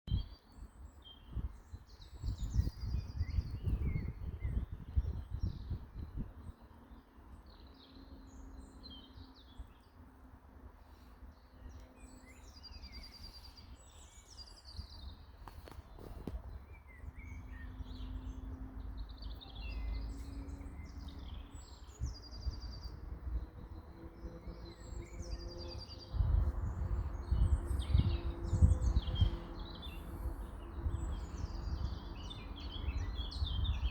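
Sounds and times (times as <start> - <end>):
birds singing and chirping: 0.1 - 10.1, 10.8 - 33.9
low rumbling: 16.5 - 32.7.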